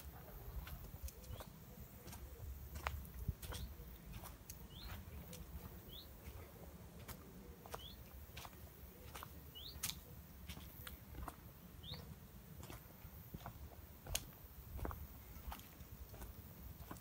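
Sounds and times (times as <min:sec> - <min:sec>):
bird chirping: 0:00.0 - 0:12.8
footsteps on dirt path: 0:00.0 - 0:17.0.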